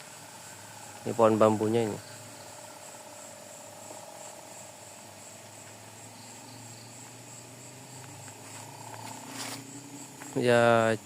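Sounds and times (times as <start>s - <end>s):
crickets chirring: 0.0s - 11.0s
faint low insect trill: 0.0s - 11.0s.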